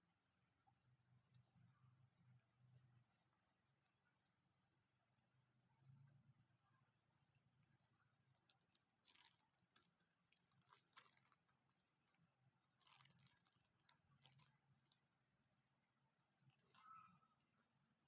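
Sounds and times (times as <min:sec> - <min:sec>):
faint rustles and clicks: 0:07.3 - 0:15.5
faint high pulsing chirp: 0:14.0 - 0:18.0.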